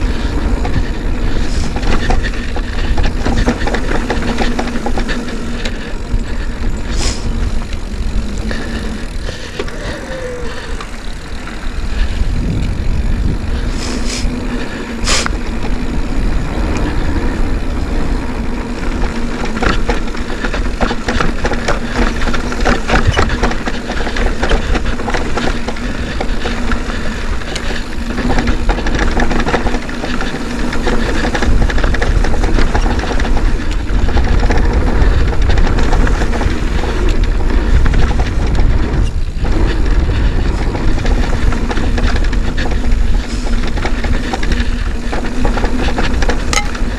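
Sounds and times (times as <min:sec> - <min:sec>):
bike clicks and rattles: 0:00.0 - 0:46.9
bike tyre noise: 0:00.0 - 0:46.9
wind rumble on microphone: 0:00.0 - 0:46.9.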